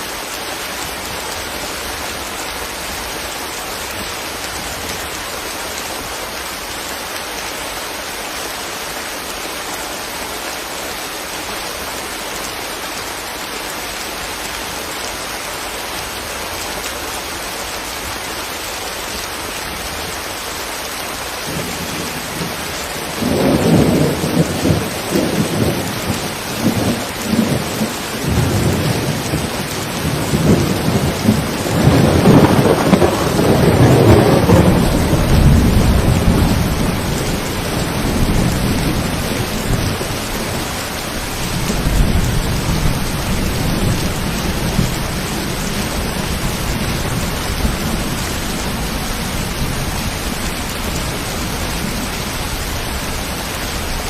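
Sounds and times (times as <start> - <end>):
steady rain falling: 0.0 - 54.0
rolling thunder: 23.2 - 40.7.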